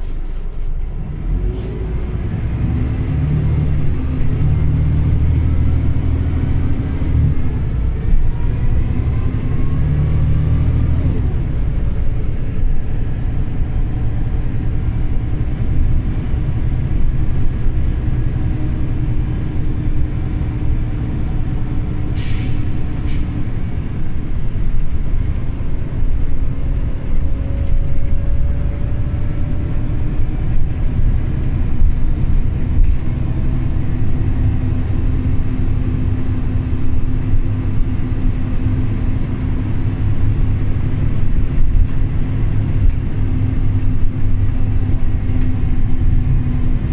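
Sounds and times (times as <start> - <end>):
bus engine and road rumble: 0.0 - 46.9
compressed air hiss: 22.2 - 23.4.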